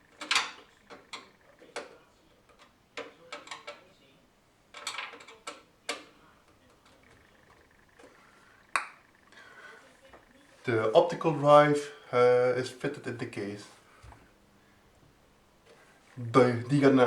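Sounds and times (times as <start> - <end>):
clicks and knocks of drive fitting: 0.0 - 3.8, 4.7 - 8.1.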